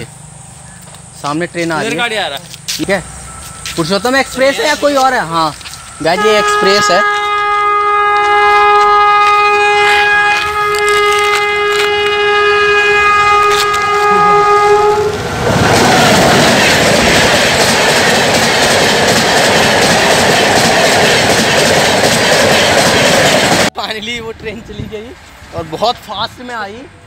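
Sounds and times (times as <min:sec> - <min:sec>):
train rushing past: 0:00.0 - 0:27.0
locomotive horn blast: 0:05.8 - 0:16.1
wheels clattering over rail joints: 0:15.1 - 0:25.9.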